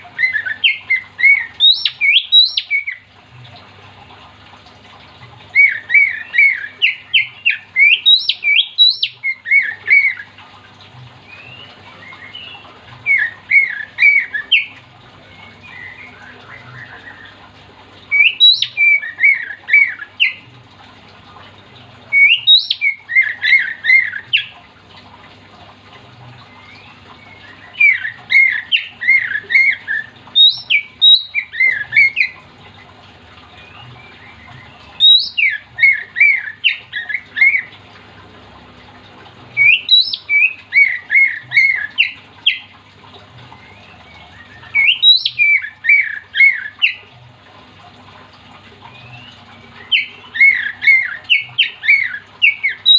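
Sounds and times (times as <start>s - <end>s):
songbird singing: 0.2s - 3.1s, 5.6s - 10.2s, 11.2s - 17.4s, 18.1s - 20.4s, 22.1s - 24.6s, 26.4s - 32.4s, 33.4s - 37.7s, 39.6s - 42.7s, 43.5s - 47.1s, 48.8s - 52.9s.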